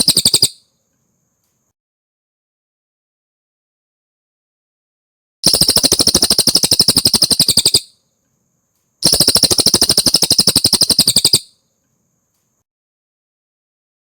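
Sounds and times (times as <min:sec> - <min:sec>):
songbird rattling trills: 0:00.0 - 0:00.6, 0:05.4 - 0:07.9, 0:09.0 - 0:11.5.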